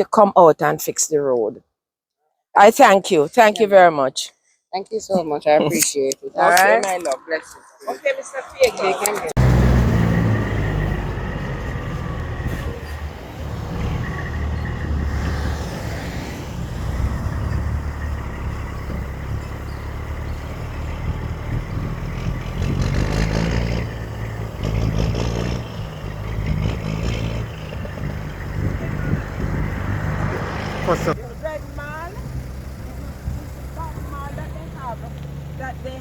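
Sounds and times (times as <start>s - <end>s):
vehicles passing: 5.4s - 36.0s
vehicle engine running: 9.4s - 36.0s.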